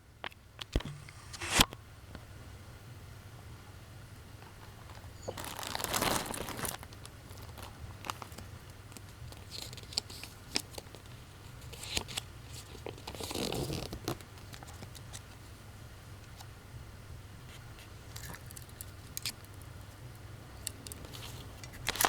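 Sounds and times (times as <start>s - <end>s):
plastic wrapping crinkling: 5.2s - 8.5s.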